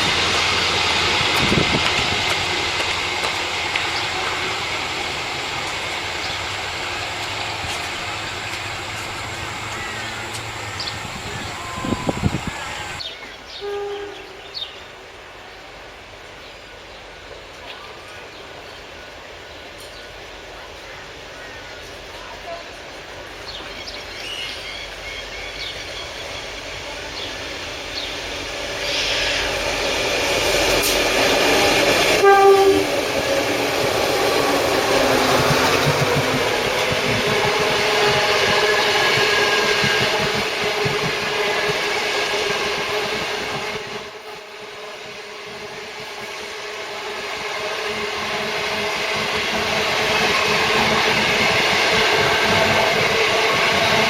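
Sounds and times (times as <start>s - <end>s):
passenger train rumble and clatter: 0.0s - 54.0s
train horn blast: 11.5s - 14.7s, 32.1s - 33.1s.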